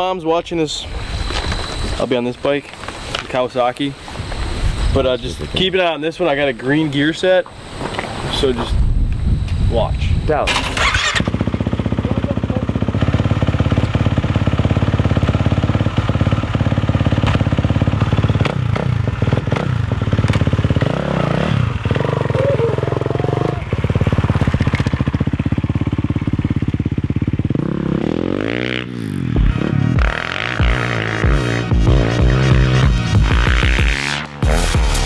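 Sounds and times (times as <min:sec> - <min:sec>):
dirt bike engine revving: 0:00.8 - 0:35.0.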